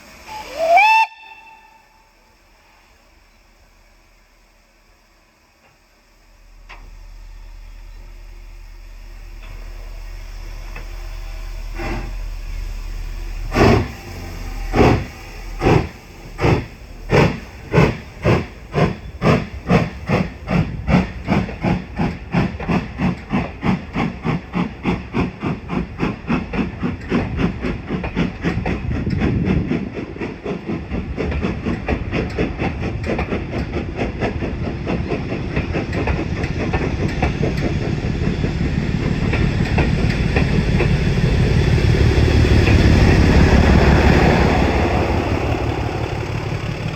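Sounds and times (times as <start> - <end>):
steam locomotive exhaust beats: 0.0 - 46.9
low rumble: 5.9 - 24.7.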